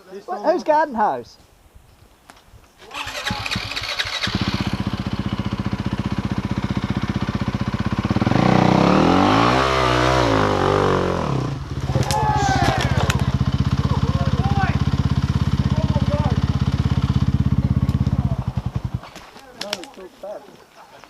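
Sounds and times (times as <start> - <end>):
motorcycle engine revving: 2.8 - 19.3.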